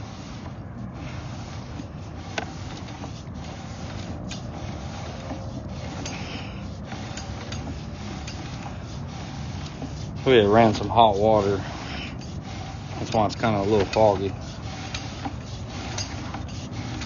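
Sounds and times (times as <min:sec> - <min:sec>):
cable rubbing in pipe: 0:00.0 - 0:17.0.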